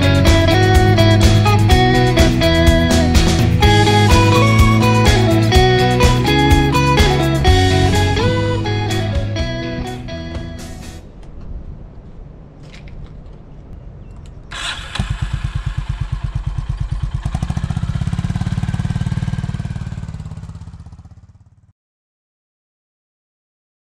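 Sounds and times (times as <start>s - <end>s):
guitar music: 0.0s - 11.1s
motorcycle engine idling: 14.5s - 21.7s.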